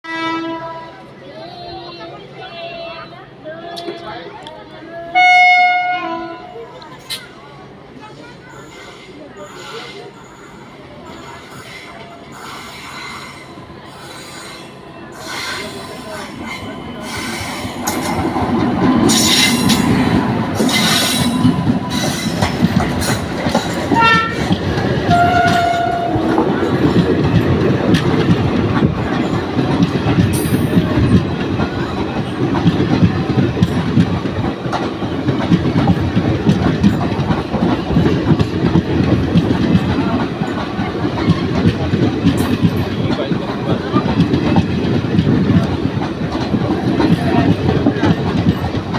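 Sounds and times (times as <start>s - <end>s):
train horn: 0.0s - 1.1s, 5.1s - 6.7s, 23.9s - 24.5s, 25.1s - 26.4s
train rumbling on rails: 0.0s - 48.9s.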